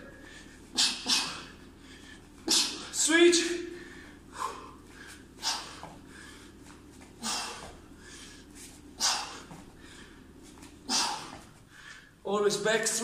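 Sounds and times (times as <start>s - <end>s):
man exhaling forcefully: 0.2s - 3.0s, 3.7s - 6.5s, 7.2s - 8.4s, 9.0s - 10.2s, 10.8s - 12.0s.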